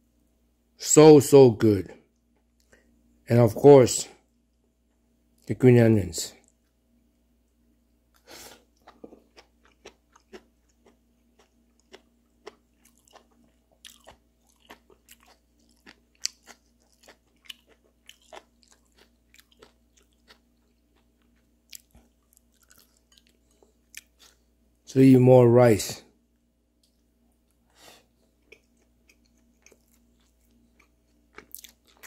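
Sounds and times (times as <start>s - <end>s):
person chewing: 8.1s - 24.5s, 26.8s - 32.0s.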